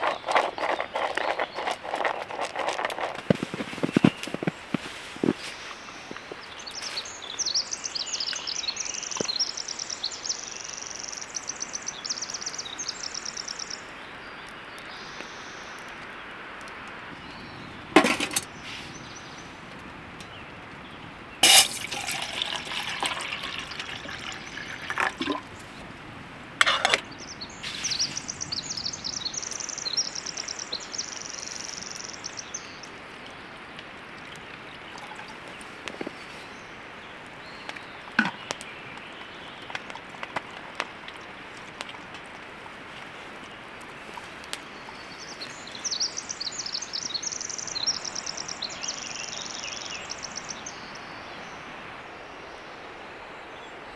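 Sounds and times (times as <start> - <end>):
water pouring and trickling: 0.0 - 7.2, 17.8 - 19.0, 21.4 - 28.4, 32.8 - 36.3
camp gear knocking and clattering: 0.2 - 6.2, 17.7 - 18.9, 21.4 - 25.9, 26.6 - 27.1, 38.2 - 38.5.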